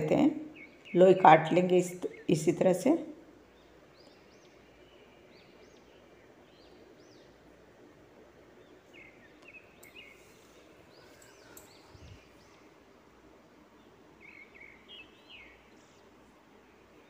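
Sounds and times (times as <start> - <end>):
faint bird chirps: 8.6 - 12.9.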